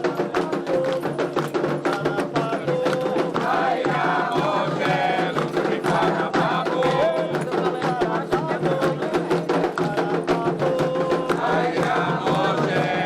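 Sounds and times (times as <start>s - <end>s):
drumming: 0.0s - 13.0s
struck percussion: 0.0s - 13.0s
voices singing a chant: 0.0s - 13.0s.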